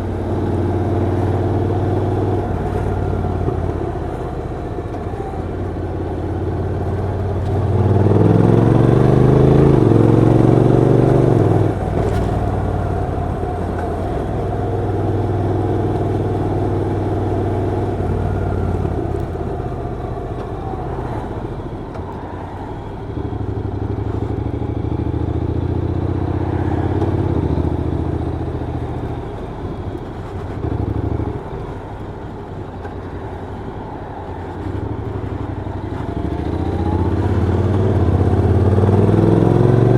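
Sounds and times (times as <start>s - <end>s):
motorcycle engine revving: 0.0s - 21.9s, 34.6s - 39.9s.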